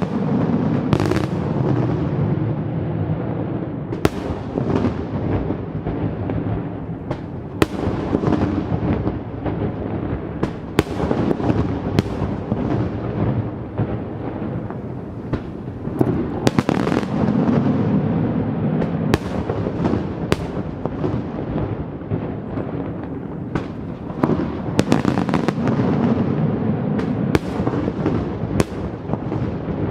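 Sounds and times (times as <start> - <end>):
fireworks rumble and crackle: 0.0 - 29.9
fireworks sharp bangs: 0.0 - 29.9.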